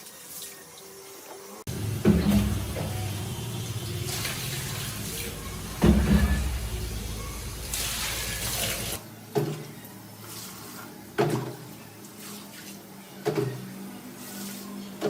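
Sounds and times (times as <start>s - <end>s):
hiss of spraying water: 1.7s - 9.0s
sharp splash or knock: 1.7s - 9.0s
water splashing and sloshing: 1.7s - 15.0s.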